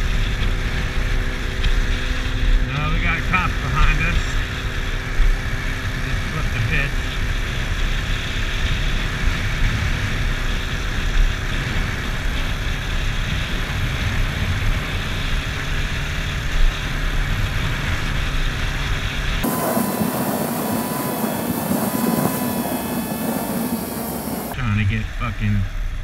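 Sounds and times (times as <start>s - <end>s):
wind rumble on microphone: 0.0s - 25.1s
motorcycle engine at speed: 0.0s - 26.0s.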